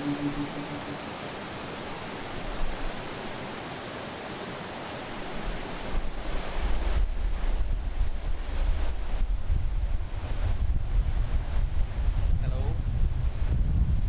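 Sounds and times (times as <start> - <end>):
wind buffeting microphone: 7.0 - 14.0.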